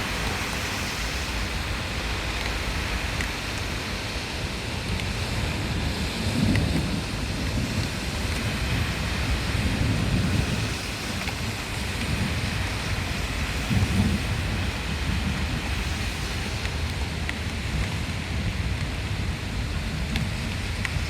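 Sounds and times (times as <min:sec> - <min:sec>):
heavy rain pouring: 0:00.0 - 0:21.0
low thunder rolling: 0:04.6 - 0:21.0.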